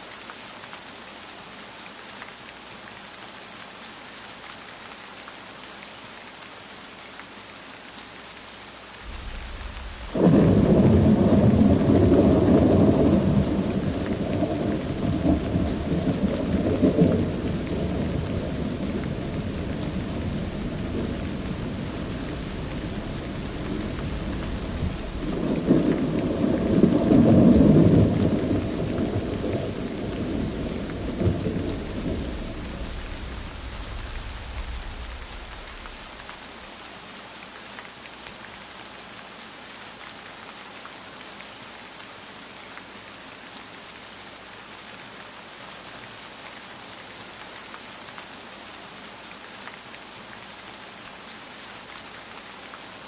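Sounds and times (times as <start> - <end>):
steady rain: 0.0 - 53.0
thunder rumbling and cracking: 9.1 - 36.4.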